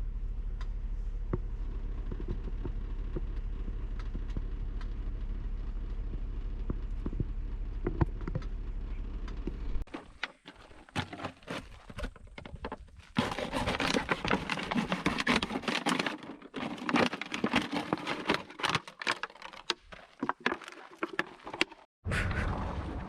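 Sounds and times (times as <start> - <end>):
objects clicking and scraping: 9.3 - 21.9.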